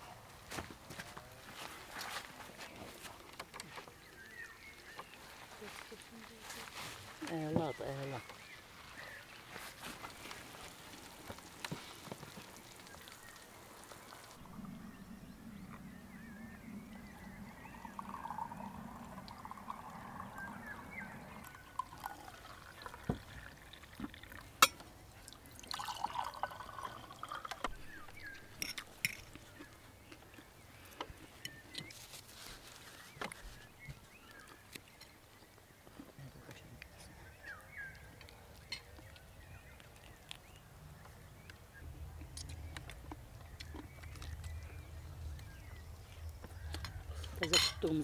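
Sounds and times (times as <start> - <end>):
liquid pouring and trickling: 10.1 - 15.8, 17.0 - 29.2.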